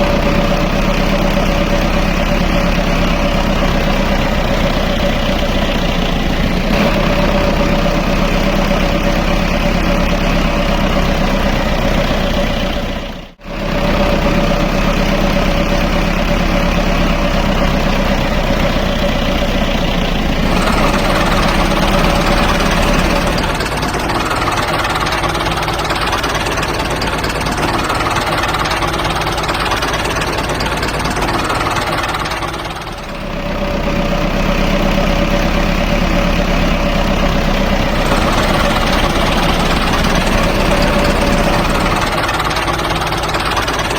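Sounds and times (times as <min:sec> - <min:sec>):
tractor motor humming: 0:17.7 - 0:24.5, 0:36.6 - 0:43.7.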